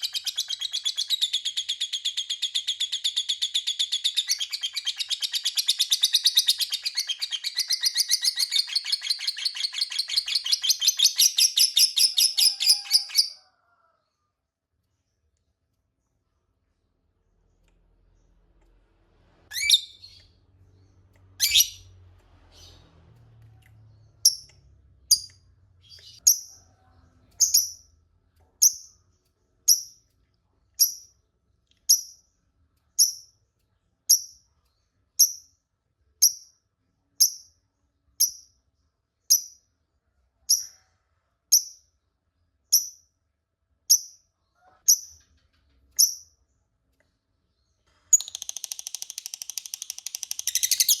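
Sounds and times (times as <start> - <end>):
lovebird sharp high chirps: 0.0 - 13.4, 19.5 - 20.3, 21.4 - 21.9, 48.2 - 51.0
lovebird shrill calls: 21.4 - 21.8.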